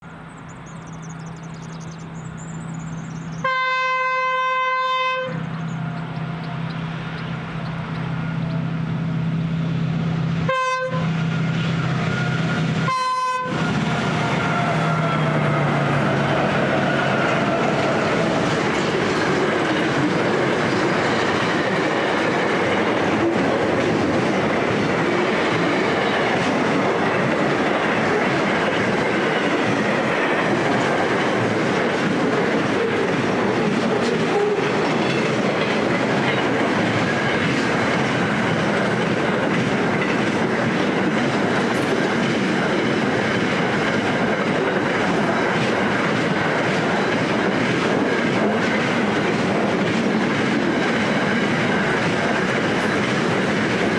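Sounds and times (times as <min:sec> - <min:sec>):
train wheels clattering on rails: 0:13.5 - 0:53.9.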